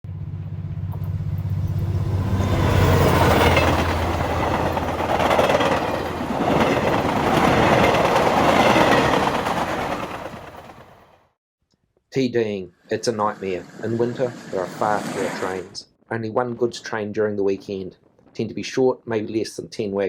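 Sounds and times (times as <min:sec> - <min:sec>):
diesel locomotive engine drone: 0:00.0 - 0:11.2
train wheels on rails: 0:00.9 - 0:11.2.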